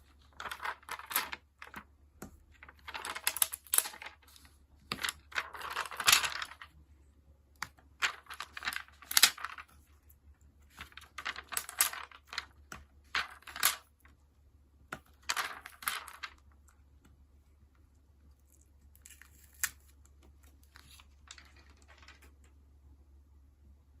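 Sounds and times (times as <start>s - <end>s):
paper rustling: 0.1s - 1.8s, 2.6s - 6.7s, 8.0s - 9.8s, 10.7s - 13.8s.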